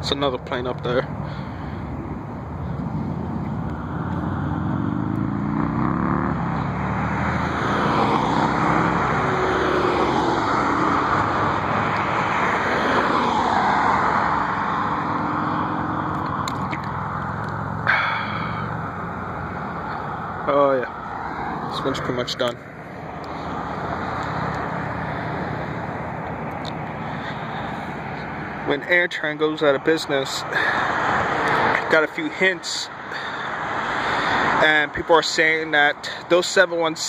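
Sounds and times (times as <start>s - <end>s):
jet airliner engines roaring overhead: 7.2s - 29.1s, 29.8s - 34.6s.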